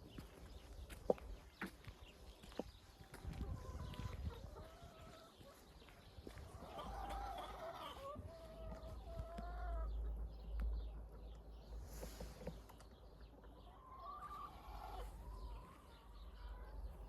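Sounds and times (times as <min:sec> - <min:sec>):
hens calling: 0:02.4 - 0:10.4, 0:11.9 - 0:17.0.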